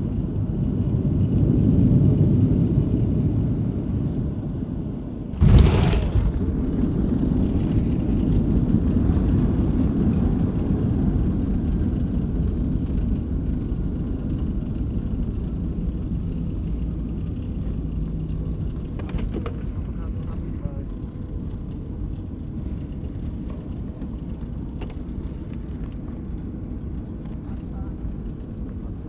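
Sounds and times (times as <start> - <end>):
sudden loud burst: 5.4 - 7.7
airliner cabin rumble: 5.4 - 11.5.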